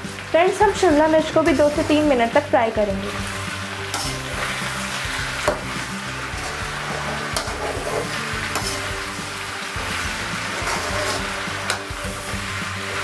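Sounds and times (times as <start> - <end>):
vegetables sizzling in oil: 0.0 - 13.0
metal spoon scraping a pan: 3.0 - 13.0.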